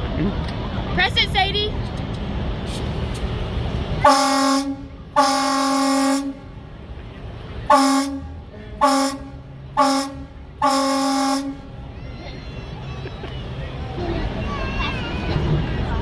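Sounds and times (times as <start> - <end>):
truck horn honking: 4.0 - 6.6, 7.7 - 11.8.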